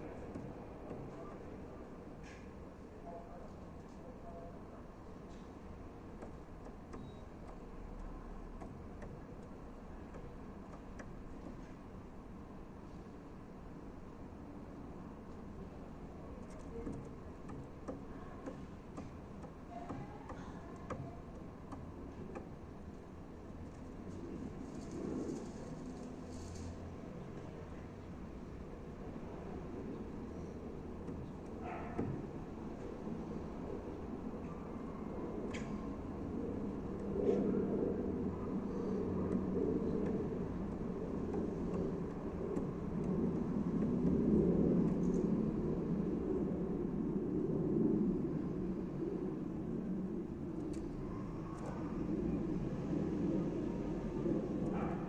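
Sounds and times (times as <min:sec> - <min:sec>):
distant motor traffic rumble: 0:00.0 - 0:55.0
low background hum: 0:00.0 - 0:55.0
dove pecking clicks: 0:06.1 - 0:11.6, 0:16.4 - 0:25.5, 0:30.8 - 0:32.4, 0:39.2 - 0:45.3.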